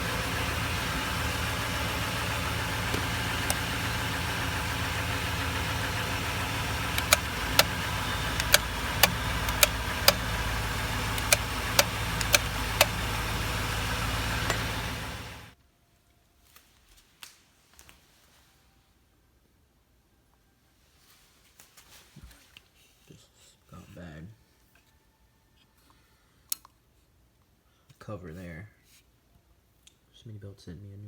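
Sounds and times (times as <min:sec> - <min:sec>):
sharp clicks: 0:00.0 - 0:15.5
engine idling: 0:00.0 - 0:15.6.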